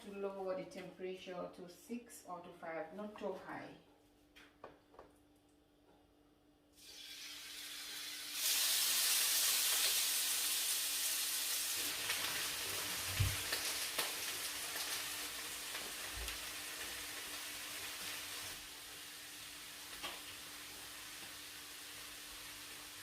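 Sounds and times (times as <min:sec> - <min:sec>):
chicken sizzling in a grill pan: 0:06.8 - 0:23.0.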